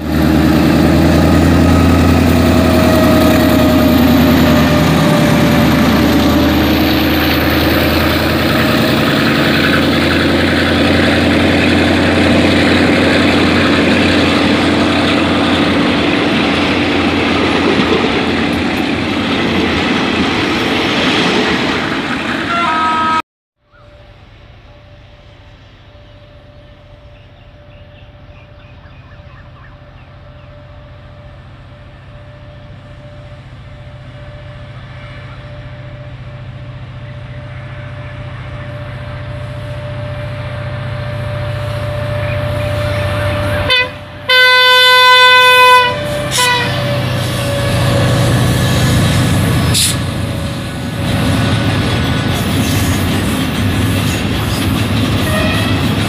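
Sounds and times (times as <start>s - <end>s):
locomotive horn: 0.0s - 10.4s, 22.3s - 23.2s, 30.4s - 50.7s, 55.1s - 56.0s
diesel train engine rumble: 0.0s - 56.0s
train passing close by: 0.0s - 56.0s.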